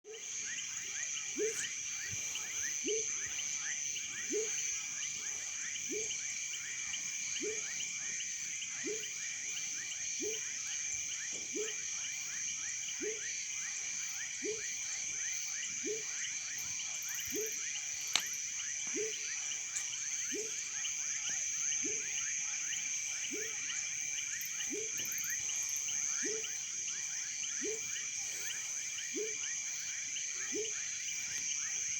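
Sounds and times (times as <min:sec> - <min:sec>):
small chirps: 0:01.3 - 0:04.6, 0:14.4 - 0:26.7
high insect trilling: 0:14.5 - 0:29.9.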